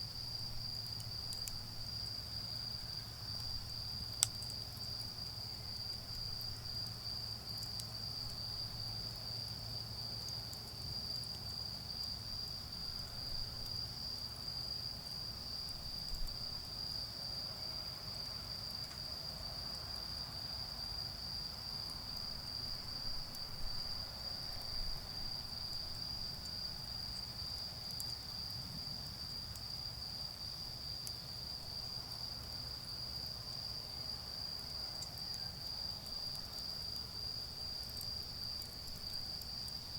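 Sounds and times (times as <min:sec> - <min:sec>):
charcoal fire clicks: 0:00.7 - 0:02.2, 0:03.3 - 0:08.5, 0:24.5 - 0:29.7, 0:37.8 - 0:39.8
insects trilling: 0:21.8 - 0:39.9.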